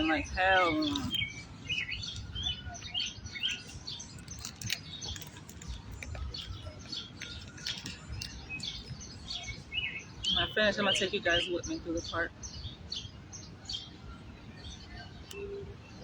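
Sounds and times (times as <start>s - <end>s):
songbirds chirping: 0.0s - 16.0s.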